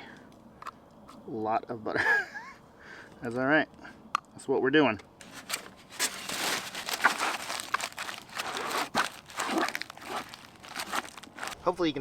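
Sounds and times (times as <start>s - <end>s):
aluminium foil crinkling: 5.2s - 11.6s.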